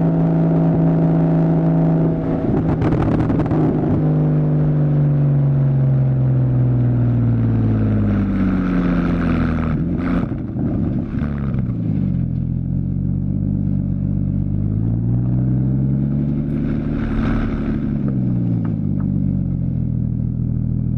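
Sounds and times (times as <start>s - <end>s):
car exhaust revving: 0.0s - 20.9s
exhaust pops: 16.2s - 19.4s.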